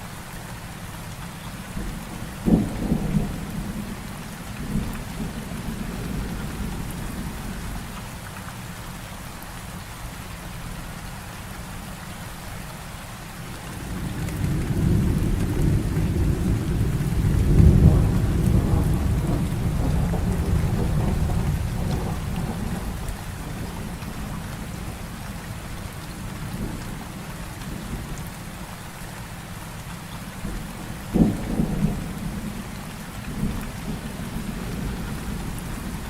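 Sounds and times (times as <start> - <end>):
heavy rain falling: 0.0 - 36.0
rolling thunder: 1.8 - 7.8, 13.7 - 28.1, 30.4 - 36.0.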